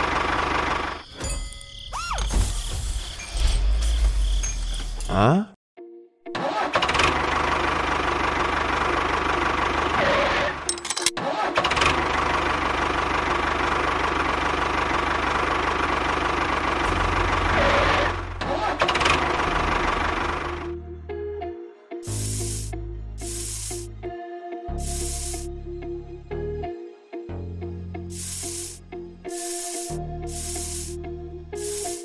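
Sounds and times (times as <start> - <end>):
engine running: 0.0 - 1.0, 6.4 - 20.8, 28.1 - 31.0.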